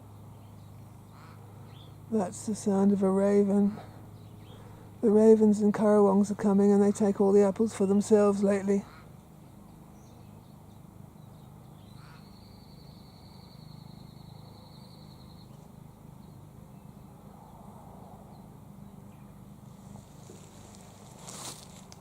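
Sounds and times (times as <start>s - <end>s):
distant cawing calls: 1.0s - 2.0s, 8.8s - 9.2s, 11.8s - 12.6s.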